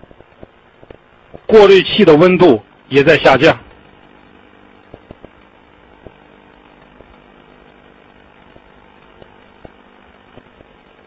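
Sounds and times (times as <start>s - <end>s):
refrigerator compressor humming: 0.0s - 11.0s
faint small clicks: 3.7s - 11.0s.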